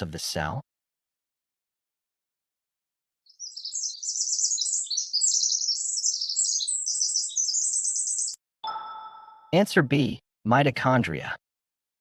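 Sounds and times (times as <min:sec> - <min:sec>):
high-pitched bird-like chirping: 0:03.3 - 0:09.6.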